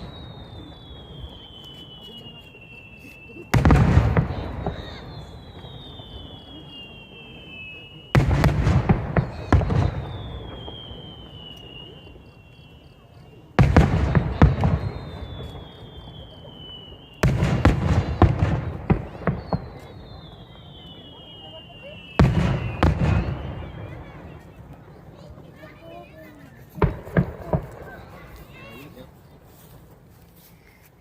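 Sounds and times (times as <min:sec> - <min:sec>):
high whistle sliding down: 0:00.0 - 0:03.4, 0:04.3 - 0:08.3, 0:09.3 - 0:13.5, 0:14.6 - 0:24.7
firework bursts: 0:00.0 - 0:31.0
firework crackling: 0:00.0 - 0:31.0.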